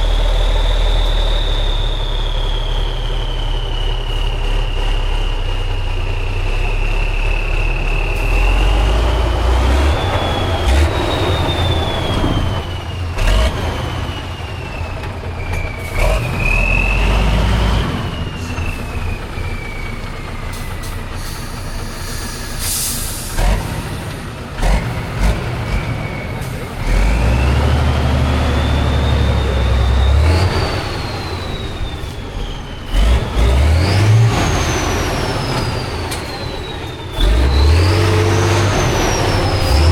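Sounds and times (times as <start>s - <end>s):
high whistle: 0.0s - 5.7s, 6.7s - 23.4s, 28.3s - 39.9s
truck diesel engine under load: 0.0s - 39.9s
short hiss: 21.2s - 23.4s.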